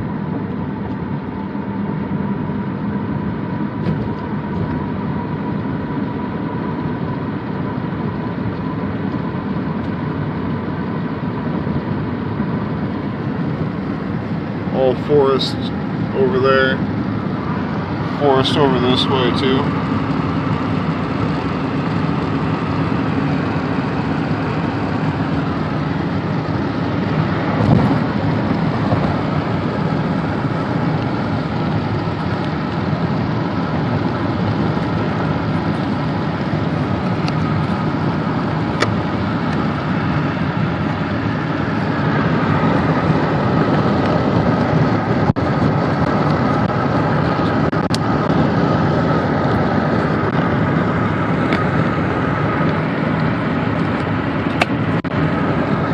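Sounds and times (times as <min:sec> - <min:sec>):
car engine hum: 0:00.0 - 0:55.9
car tyre noise: 0:13.3 - 0:55.9.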